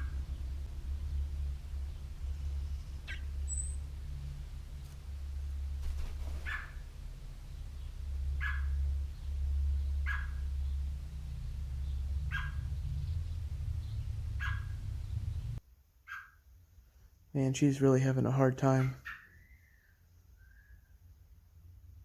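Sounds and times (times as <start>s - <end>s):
low rumble: 0.0s - 15.6s.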